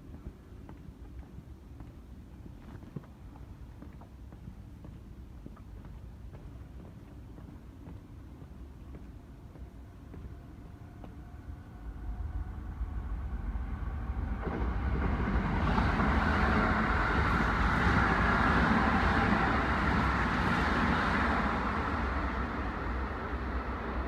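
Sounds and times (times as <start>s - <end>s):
electric train running past: 7.6s - 24.0s.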